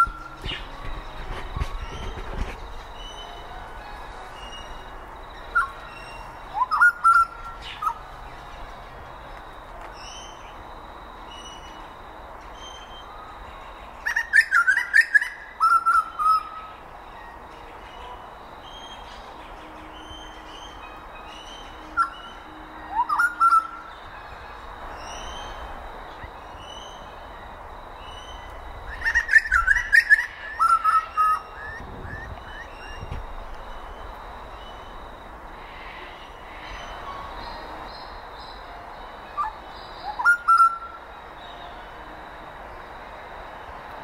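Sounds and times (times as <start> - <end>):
birds chirping and whistling: 0.0 - 9.0, 12.6 - 16.8, 17.4 - 27.3, 28.0 - 38.6, 39.4 - 41.6
outdoor background noise: 0.0 - 44.0.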